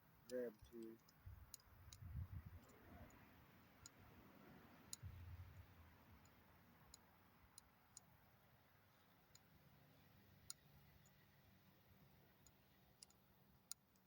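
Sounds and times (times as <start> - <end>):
soft low bumps: 5.0 - 5.8.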